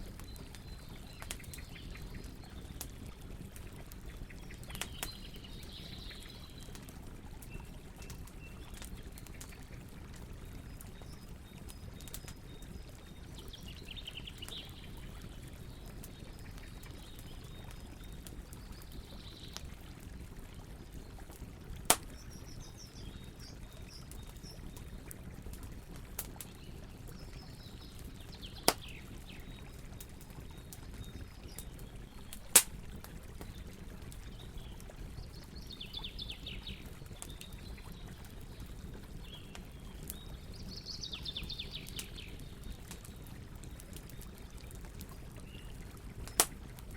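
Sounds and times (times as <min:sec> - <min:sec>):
burning wood popping: 0:00.0 - 0:05.4, 0:21.7 - 0:23.1, 0:25.5 - 0:34.4, 0:42.0 - 0:46.9
campfire crackling: 0:00.0 - 0:46.9.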